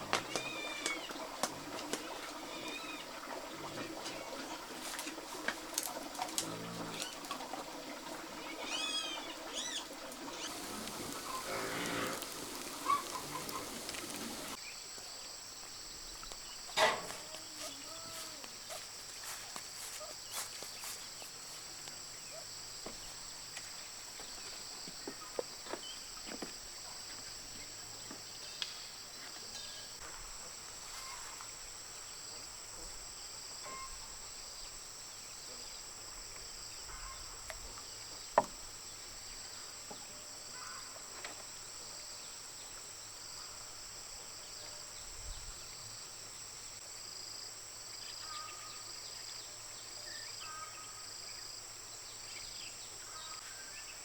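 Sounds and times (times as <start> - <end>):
high-pitched insect chorus: 4.8 - 24.9.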